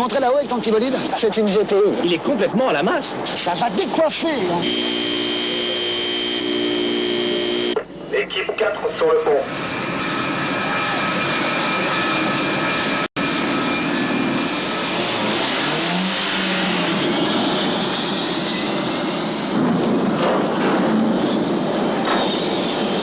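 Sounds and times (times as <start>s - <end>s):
loud engine roar with whining: 4.4s - 8.1s, 9.2s - 23.0s.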